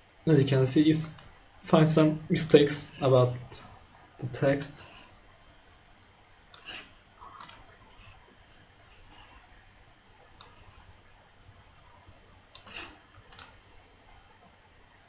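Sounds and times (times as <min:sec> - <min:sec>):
faint room hiss: 0:00.0 - 0:15.0
computer mouse clicks: 0:01.1 - 0:01.3, 0:06.0 - 0:07.8, 0:10.4 - 0:10.8, 0:12.5 - 0:13.6.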